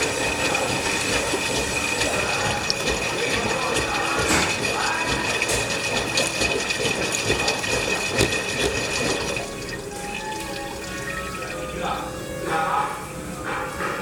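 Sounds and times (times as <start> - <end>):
small knocks in washing machine: 0.0 - 9.5
water sloshing in washing machine drum: 0.0 - 14.0.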